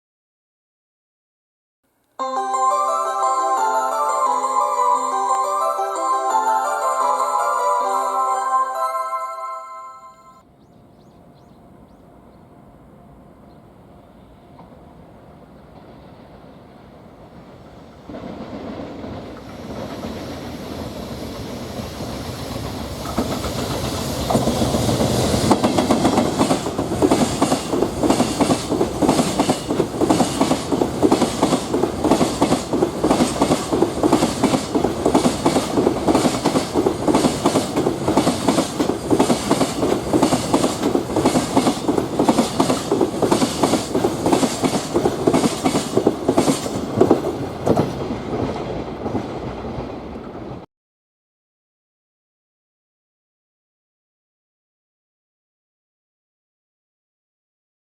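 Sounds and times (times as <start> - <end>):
freight train passing: 2.2 - 50.6
wheels clacking over rail joints: 22.0 - 50.6.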